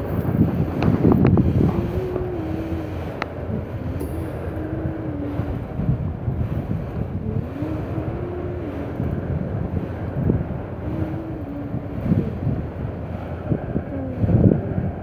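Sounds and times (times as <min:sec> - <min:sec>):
train clunks: 0:00.0 - 0:11.2
low wavering whine: 0:00.0 - 0:15.0
train wheels rumbling on rail: 0:00.0 - 0:15.0
wind buffeting microphone: 0:00.0 - 0:15.0.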